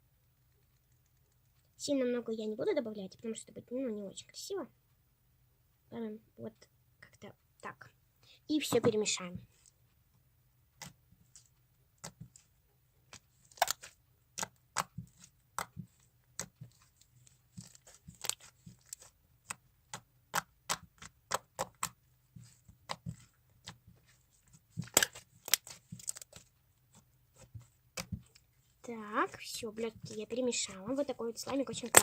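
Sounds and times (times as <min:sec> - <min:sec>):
slime sticky clicks and pops: 0:13.5 - 0:14.9.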